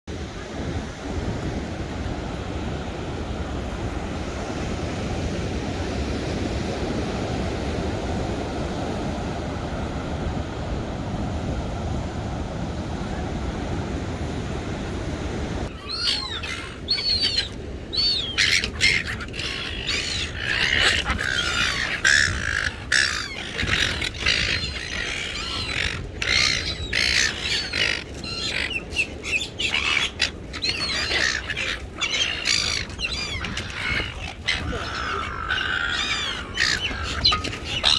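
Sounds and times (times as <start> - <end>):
rushing wind: 0.1 - 37.9
gulls calling and squawking: 15.7 - 37.9.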